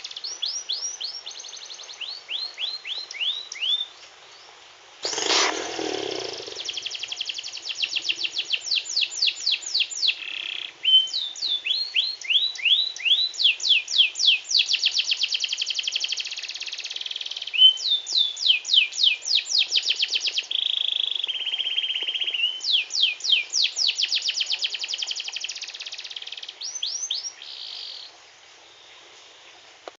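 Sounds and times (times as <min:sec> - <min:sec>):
canary singing trills: 0:05.0 - 0:28.1.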